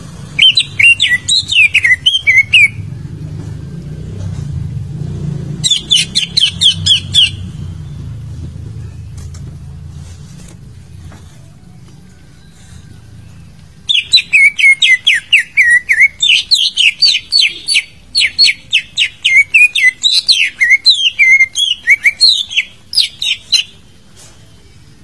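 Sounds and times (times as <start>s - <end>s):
bird song whistled notes: 0.3s - 3.0s, 5.6s - 9.3s, 11.7s - 25.0s.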